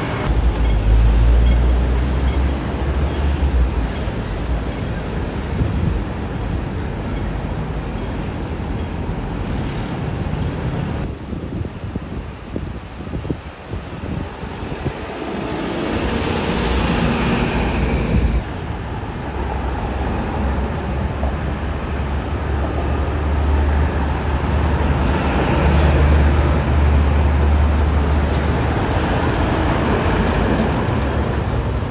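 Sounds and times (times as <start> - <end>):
heavy vehicle engine rumbling: 0.0 - 11.3
tyre and road noise: 0.0 - 31.9.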